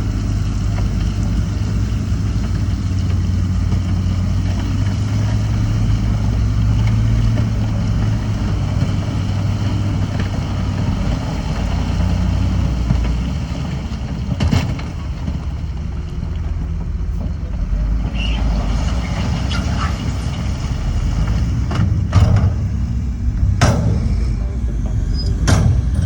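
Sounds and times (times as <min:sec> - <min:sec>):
diesel machinery engine rumble: 0:00.0 - 0:26.0
sharp knocks: 0:21.7 - 0:26.0.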